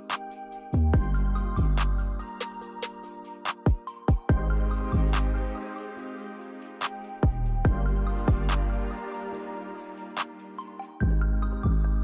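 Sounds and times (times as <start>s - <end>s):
soft sustained chords: 4.3s - 10.1s.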